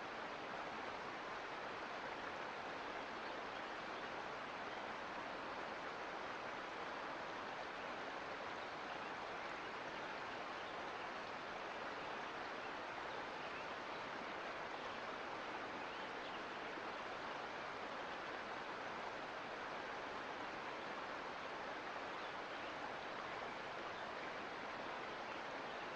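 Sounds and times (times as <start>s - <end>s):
creek water rushing: 0.0s - 25.9s.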